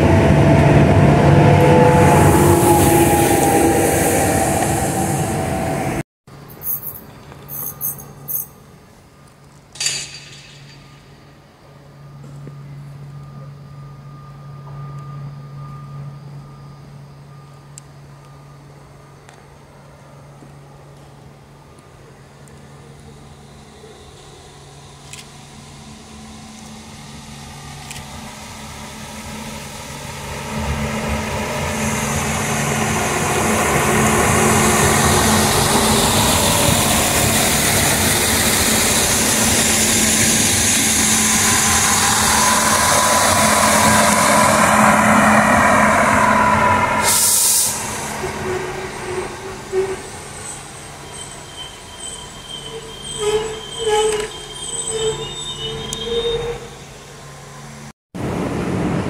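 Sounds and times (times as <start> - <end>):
railcar approaching: 0.0 - 59.0
train passing with whine: 0.0 - 59.0
air hiss: 46.9 - 48.3
short squeals: 48.1 - 57.1.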